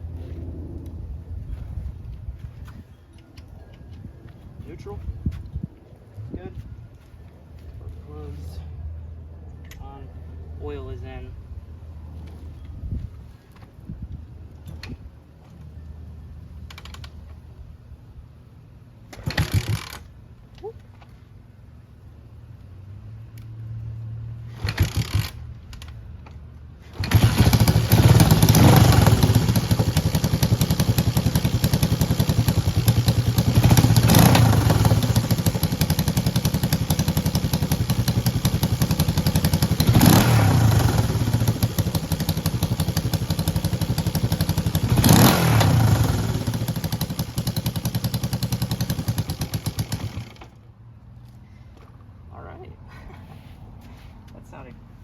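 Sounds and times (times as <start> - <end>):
motorcycle engine cranking and running: 16.6 - 17.4, 19.1 - 20.2, 24.6 - 50.7
engine revving from throttle blips: 27.0 - 48.1.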